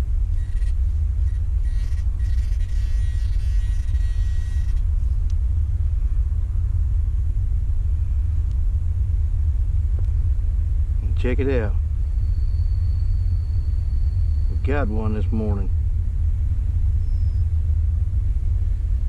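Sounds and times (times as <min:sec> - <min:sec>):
low rumble: 0:00.0 - 0:19.0
metal detector signal tone: 0:00.4 - 0:04.8.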